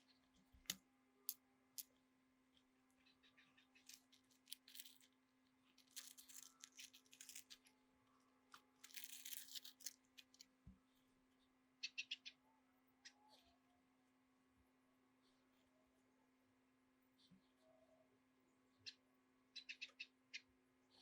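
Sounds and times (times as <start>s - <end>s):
scratching and rustling of hand work: 3.6s - 11.1s.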